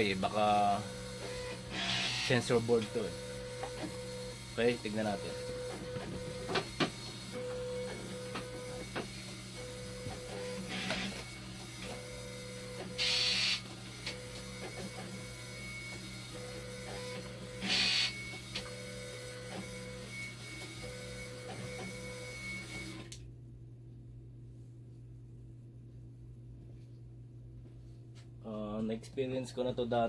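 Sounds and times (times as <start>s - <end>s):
machine pumps humming: 0.0s - 23.9s.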